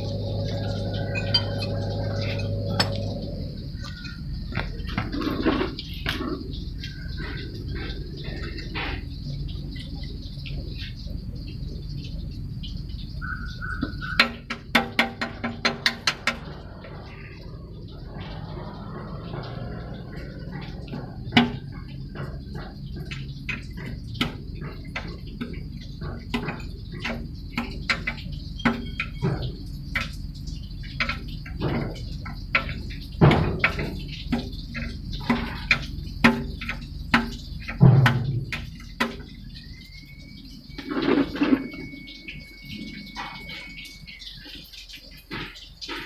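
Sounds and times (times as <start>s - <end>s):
low steady hum: 0.0s - 46.0s
tools clinking on metal: 0.1s - 3.2s
thin high tone: 39.7s - 44.5s.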